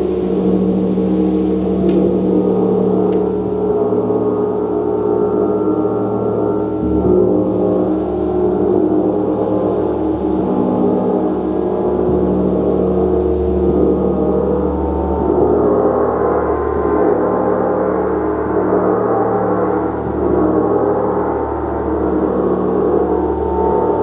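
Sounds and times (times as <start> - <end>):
gong ringing: 17.1 - 24.0.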